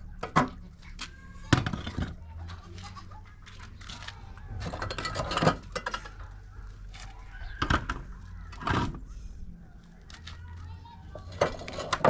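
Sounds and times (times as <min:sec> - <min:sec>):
objects knocking and clattering: 0:00.2 - 0:02.2, 0:04.6 - 0:06.5, 0:07.5 - 0:09.0.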